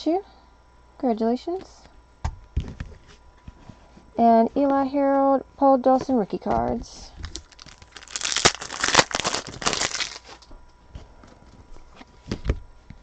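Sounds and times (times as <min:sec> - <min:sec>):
trading cards rustling: 0:06.1 - 0:10.4.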